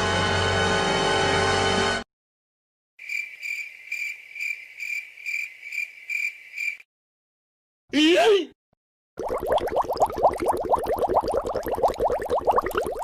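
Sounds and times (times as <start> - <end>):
music: 0.0 - 2.0
crickets chirping: 3.0 - 6.8.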